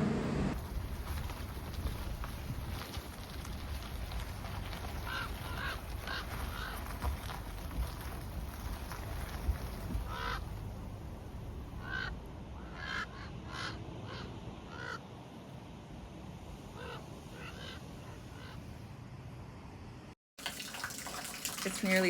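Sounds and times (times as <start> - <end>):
low steady rumble: 0.0 - 13.4
crows cawing: 5.0 - 7.0, 10.0 - 10.5, 11.8 - 15.0, 16.8 - 18.6.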